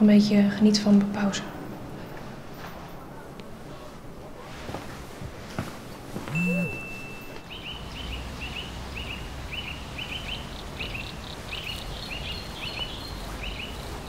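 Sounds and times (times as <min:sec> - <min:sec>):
small bird chirping doubled notes: 0:06.3 - 0:13.6.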